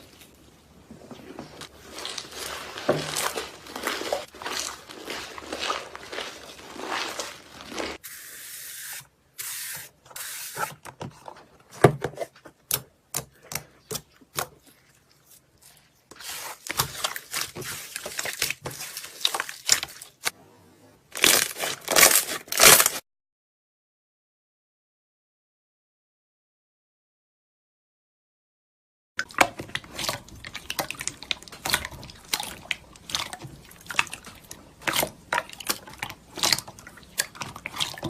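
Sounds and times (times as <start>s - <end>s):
slime crackling: 1.2s - 8.0s.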